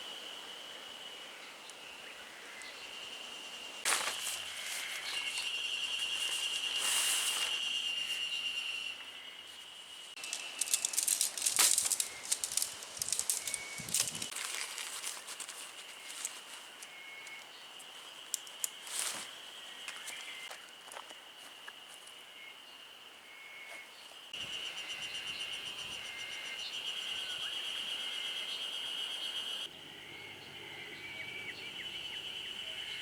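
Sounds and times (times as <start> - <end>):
rustling and clicking: 10.2 - 20.4.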